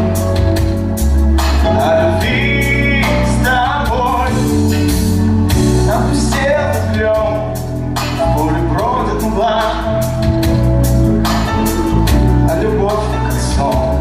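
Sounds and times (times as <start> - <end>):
pop music drum beat and bass: 0.0 - 14.0
person singing: 1.4 - 5.0, 5.6 - 10.3, 12.4 - 14.0.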